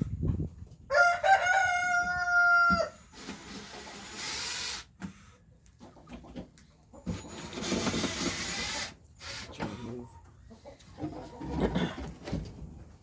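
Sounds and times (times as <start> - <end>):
rooster crowing: 0.9 - 3.0.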